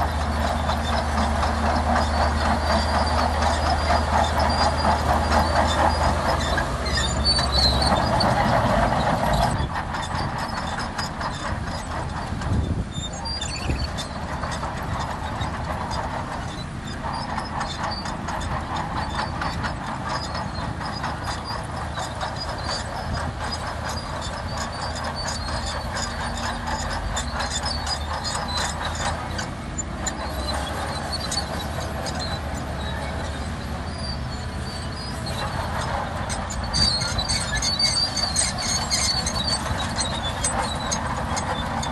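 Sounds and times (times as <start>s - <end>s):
bulldozer tracks clattering: 0.0s - 41.9s
diesel engine running: 0.0s - 41.9s.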